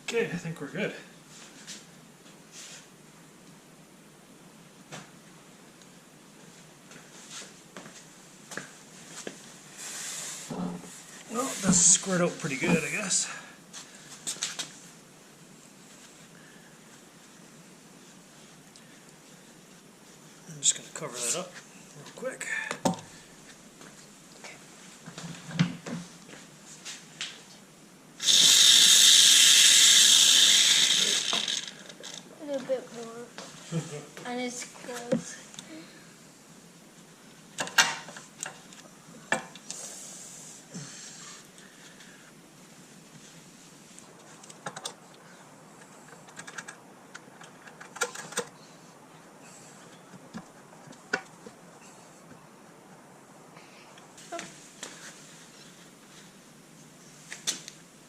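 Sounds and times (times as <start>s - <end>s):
aerosol can hissing: 28.2s - 31.7s.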